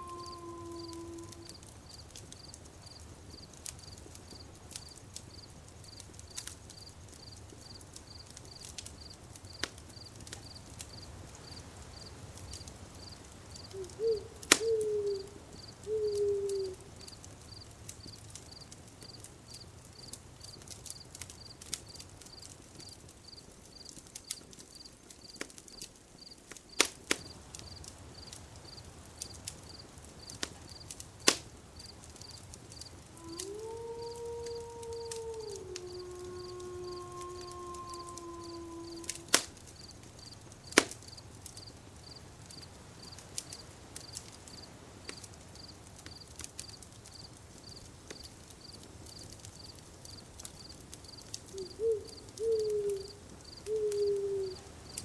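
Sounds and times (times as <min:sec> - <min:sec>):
wavering animal call: 0:00.0 - 0:01.6, 0:13.7 - 0:16.8, 0:33.1 - 0:39.5, 0:51.5 - 0:54.7
crickets chirping: 0:00.0 - 0:21.6, 0:27.2 - 0:30.9, 0:31.6 - 0:55.0
campfire crackling and popping: 0:00.0 - 0:55.0.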